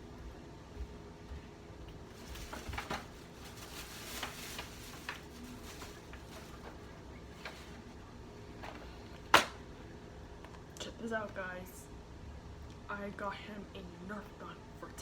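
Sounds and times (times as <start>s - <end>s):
soft rustling: 0.7s - 8.0s.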